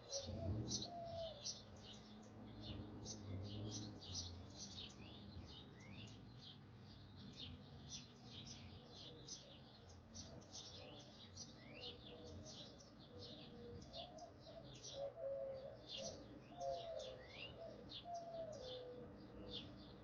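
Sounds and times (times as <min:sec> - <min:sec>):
birds chirping: 0:00.0 - 0:20.0
lower held bird calls: 0:00.0 - 0:20.0.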